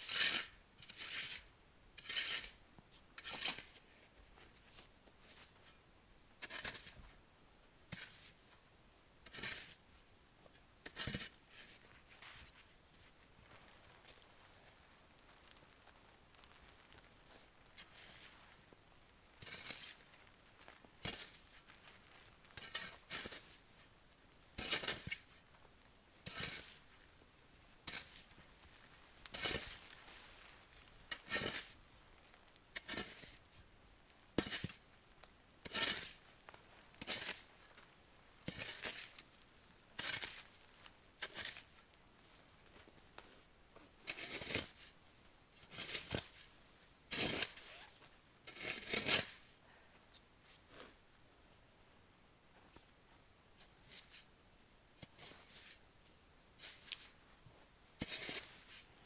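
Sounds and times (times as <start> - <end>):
footsteps crunching in snow: 11.5 - 18.8, 27.9 - 31.8.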